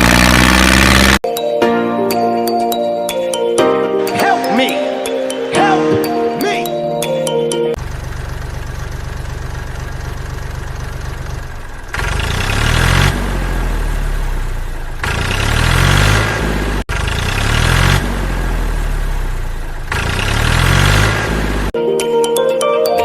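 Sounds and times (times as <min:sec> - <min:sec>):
tractor engine idling and revving: 0:00.0 - 0:01.2, 0:07.7 - 0:21.8.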